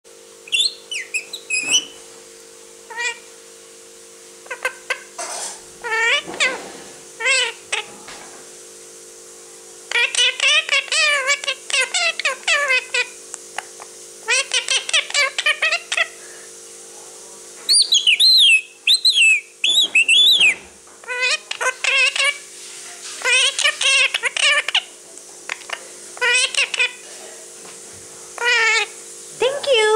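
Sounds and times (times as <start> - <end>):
parakeet calling: 0.4 - 2.1, 2.8 - 3.3, 4.4 - 6.6, 7.2 - 8.0, 9.9 - 16.3, 17.6 - 22.5, 23.1 - 27.0, 28.4 - 29.9.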